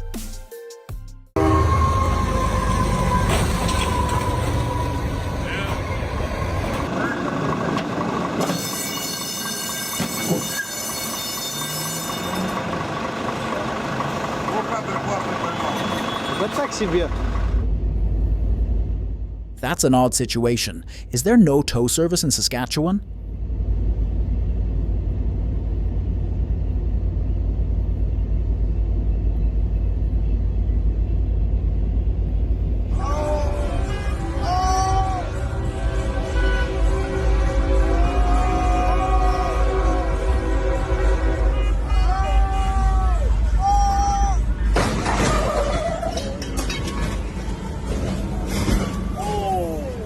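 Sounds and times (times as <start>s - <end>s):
heavy vehicle low rumble: 1.4s - 50.0s
train wheels squealing: 8.4s - 12.6s, 15.1s - 17.0s.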